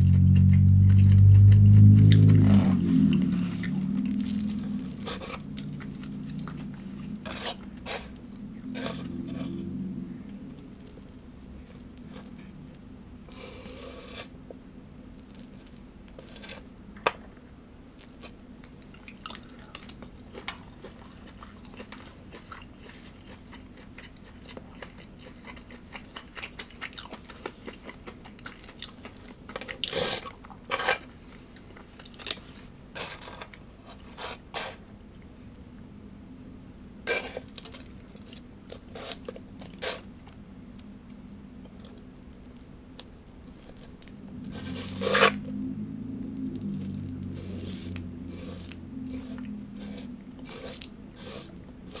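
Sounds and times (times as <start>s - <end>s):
person chewing and crunching food: 0.0s - 14.3s, 18.0s - 34.7s, 37.1s - 40.4s, 41.6s - 52.0s.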